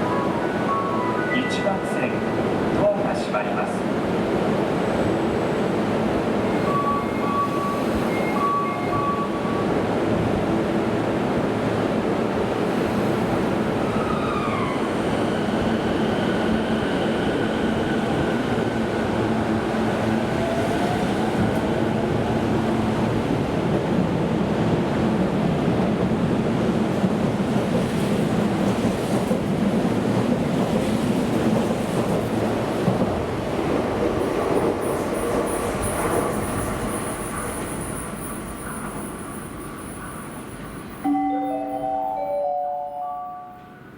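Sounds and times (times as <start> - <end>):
electric train rolling rumble: 0.0 - 43.9.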